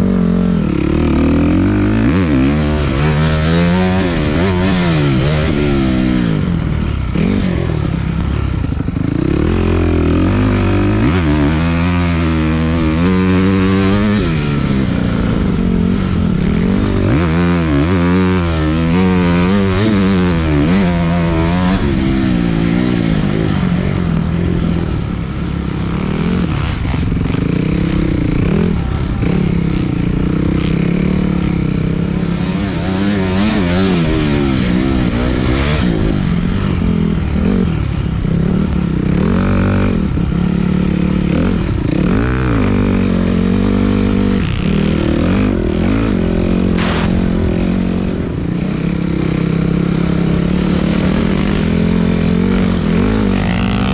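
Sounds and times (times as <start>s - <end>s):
dirt bike engine revving: 0.0s - 53.9s
steady low rumble: 45.5s - 53.8s.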